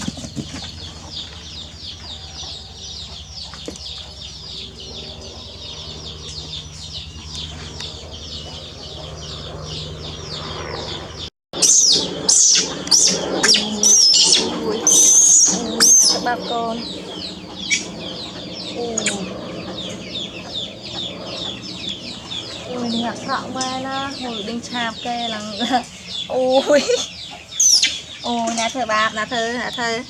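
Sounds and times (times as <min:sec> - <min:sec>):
animal chirping: 0:00.0 - 0:30.0
animal squealing: 0:11.6 - 0:28.4.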